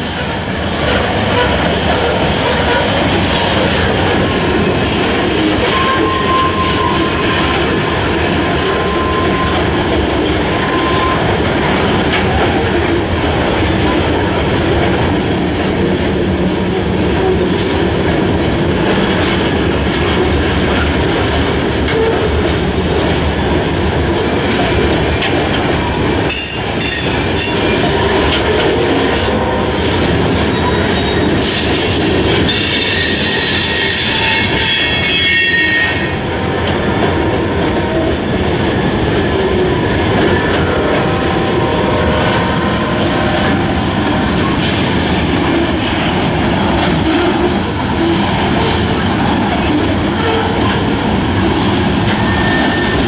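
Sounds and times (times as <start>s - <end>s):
freight train rumbling past: 0.0s - 53.0s
wheel squeal: 5.6s - 7.5s, 8.6s - 9.7s, 10.6s - 11.3s, 52.2s - 53.0s.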